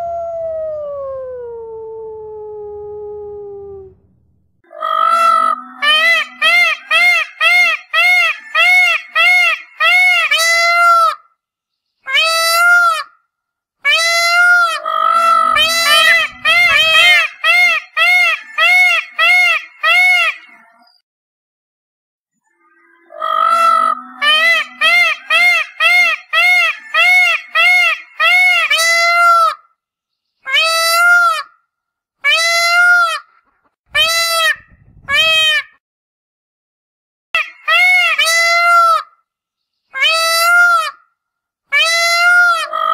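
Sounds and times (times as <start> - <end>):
peacock wailing calls: 4.7 - 11.2, 13.9 - 20.7, 22.7 - 29.6, 34.0 - 35.8, 37.4 - 39.1, 40.0 - 41.0, 41.7 - 42.9.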